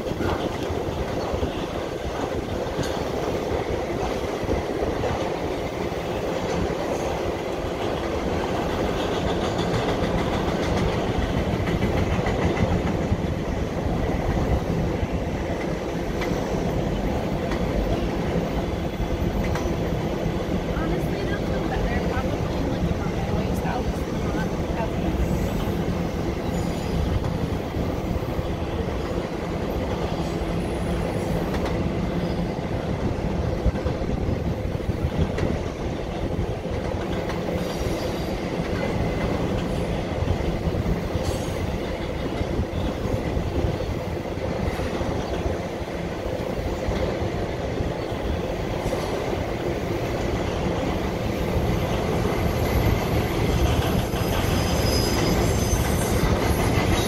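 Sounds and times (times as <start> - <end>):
freight train wheels rumbling on rails: 0.0 - 57.0
thin wheel squeal: 54.2 - 57.0.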